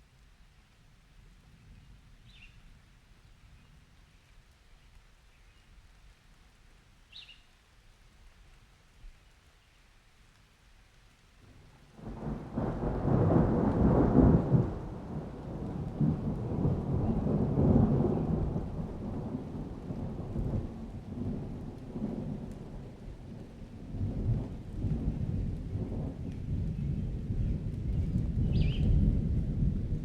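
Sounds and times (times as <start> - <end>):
rolling thunder: 12.0 - 30.0.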